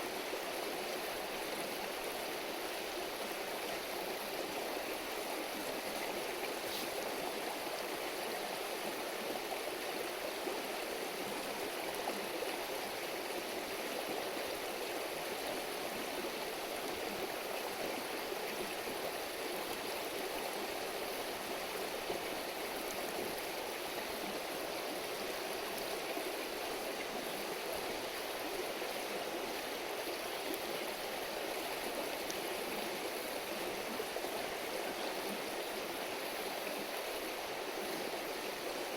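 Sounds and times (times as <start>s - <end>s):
river babbling over stones: 0.0s - 38.9s.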